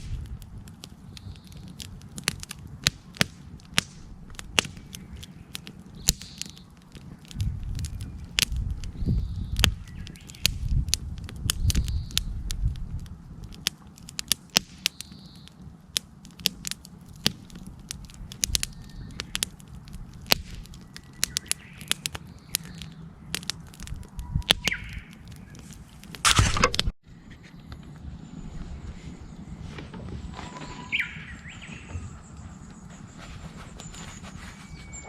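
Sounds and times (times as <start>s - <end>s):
campfire crackling and popping: 0.0s - 34.0s
rustling burst: 25.4s - 27.0s.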